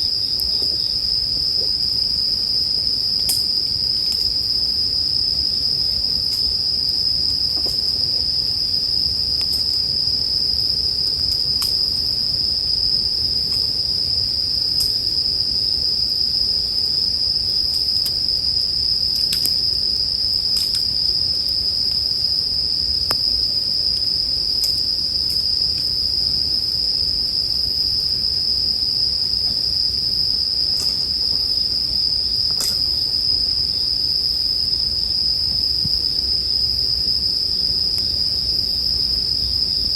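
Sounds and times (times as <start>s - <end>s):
crickets trilling: 0.0s - 39.9s
campfire crackling: 17.6s - 22.2s, 30.1s - 33.2s.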